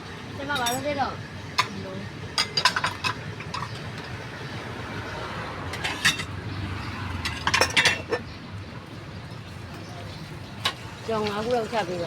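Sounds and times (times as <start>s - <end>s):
utensils clinking against dishes: 0.5s - 1.0s, 2.4s - 4.2s, 5.7s - 6.4s, 7.2s - 8.3s.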